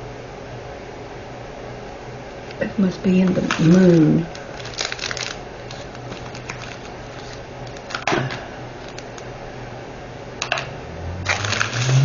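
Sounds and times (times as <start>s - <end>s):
packets rustling: 3.2s - 9.2s, 11.3s - 12.0s
low hum rising in pitch: 10.6s - 12.0s.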